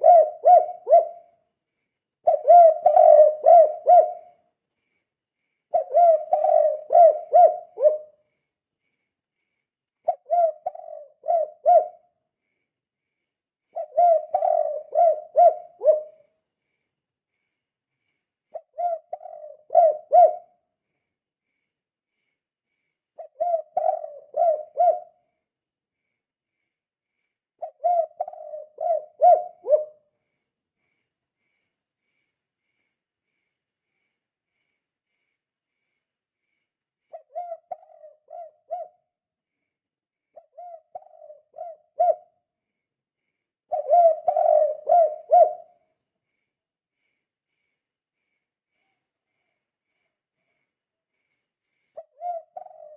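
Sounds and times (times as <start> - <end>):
dove cooing: 0.0 - 1.3, 2.2 - 4.4, 5.7 - 8.2, 10.0 - 12.1, 13.7 - 16.3, 18.5 - 20.6, 23.2 - 25.2, 27.6 - 30.0, 37.1 - 39.1, 40.4 - 42.4, 43.7 - 45.9, 52.0 - 52.9.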